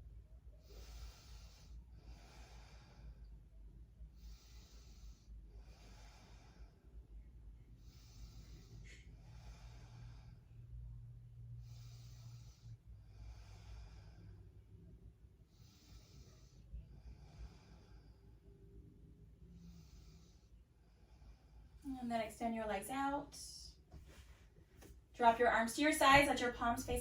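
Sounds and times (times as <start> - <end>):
slow deep breathing: 0.5 - 21.9.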